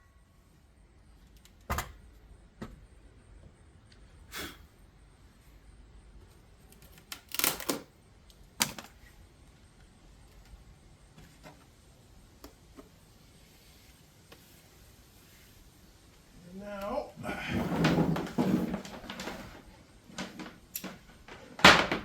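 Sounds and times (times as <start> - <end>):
knocks and clatters of objects: 17.4 - 22.0.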